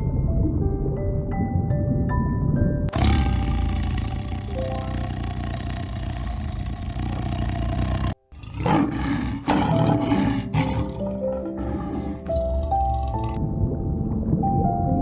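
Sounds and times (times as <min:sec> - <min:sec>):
animal calling: 0:02.9 - 0:13.4
background music: 0:07.4 - 0:15.0.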